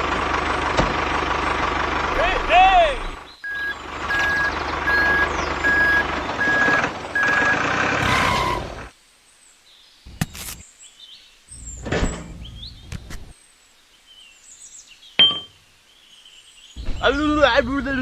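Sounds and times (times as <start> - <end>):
engine running: 0.0 - 8.9
reversing alarm beeping: 3.4 - 8.8.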